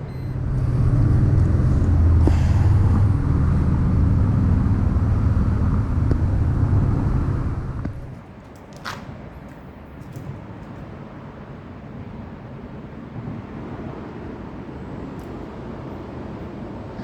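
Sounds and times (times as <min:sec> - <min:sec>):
loud low rumble: 0:00.0 - 0:08.1.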